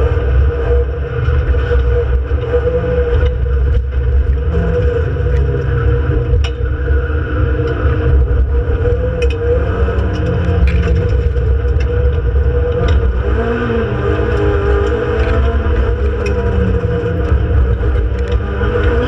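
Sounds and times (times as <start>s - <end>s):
race car engine droning: 0.0s - 19.0s.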